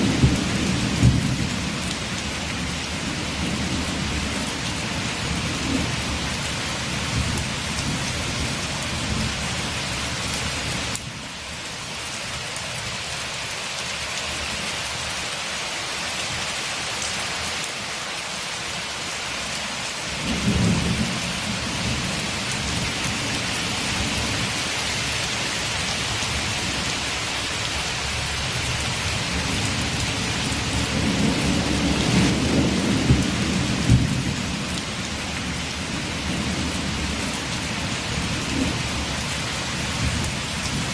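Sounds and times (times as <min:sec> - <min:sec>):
low rolls of thunder: 0:00.0 - 0:01.8, 0:20.2 - 0:23.1, 0:29.0 - 0:34.8
steady rain: 0:00.0 - 0:40.9.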